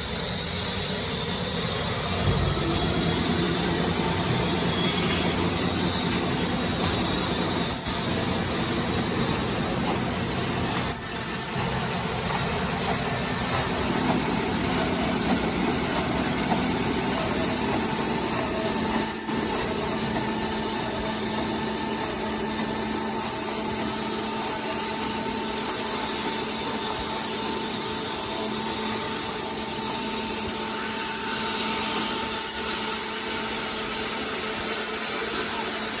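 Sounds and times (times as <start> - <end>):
paper rewinding machine whirring: 2.1 - 36.0.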